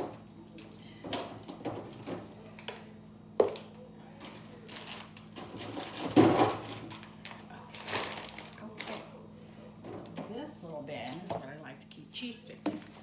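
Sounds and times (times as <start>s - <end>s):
food packages clicking and knocking: 0.0s - 9.1s.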